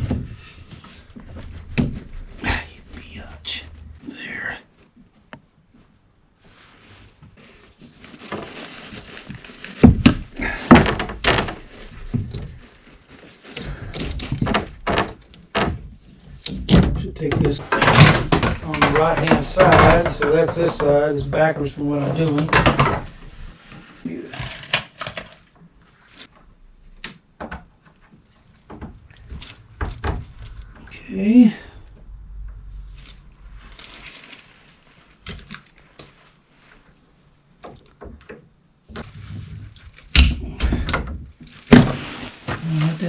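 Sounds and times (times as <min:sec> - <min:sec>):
tools and plastic pipe clattering: 0:00.0 - 0:04.0, 0:06.5 - 0:30.9, 0:37.5 - 0:43.0
sharp knocks: 0:00.0 - 0:04.3, 0:16.5 - 0:23.6, 0:28.5 - 0:34.0
pipe fittings and tools clinking: 0:13.7 - 0:23.6.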